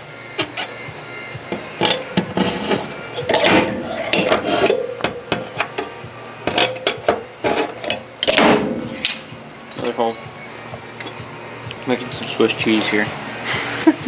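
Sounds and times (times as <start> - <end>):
scraping on metal: 0.4 - 0.8, 1.4 - 10.2, 12.1 - 13.6
hand tools knocking on sheet metal: 3.3 - 7.6.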